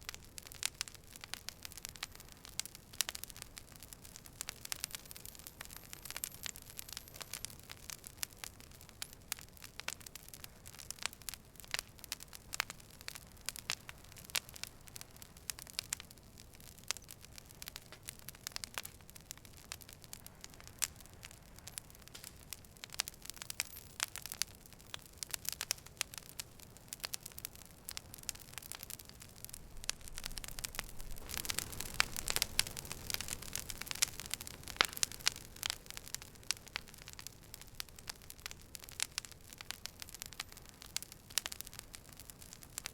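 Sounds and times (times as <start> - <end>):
campfire crackling and popping: 0.0 - 42.9
rush of flame: 28.2 - 36.2.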